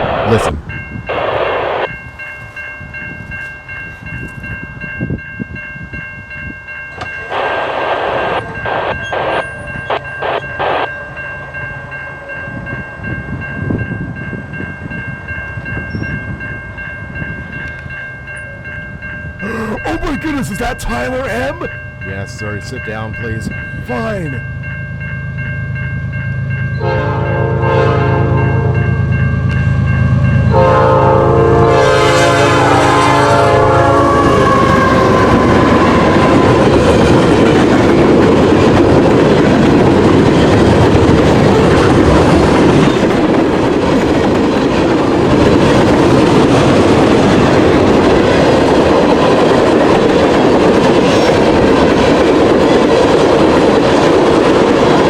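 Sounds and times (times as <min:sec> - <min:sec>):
train cars rumbling and clattering: 0:00.0 - 0:55.0
locomotive air horn: 0:26.8 - 0:28.4, 0:30.5 - 0:36.6.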